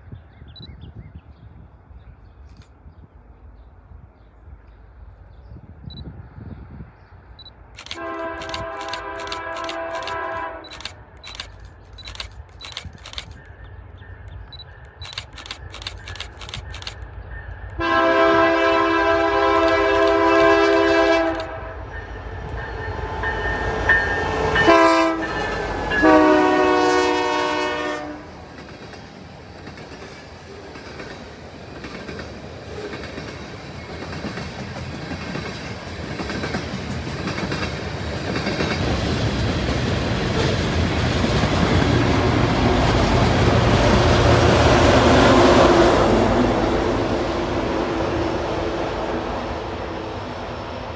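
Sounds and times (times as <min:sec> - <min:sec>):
approaching train rumble: 0:01.5 - 0:50.9
locomotive air horn blasts: 0:08.0 - 0:10.7, 0:17.8 - 0:21.8, 0:24.2 - 0:28.4.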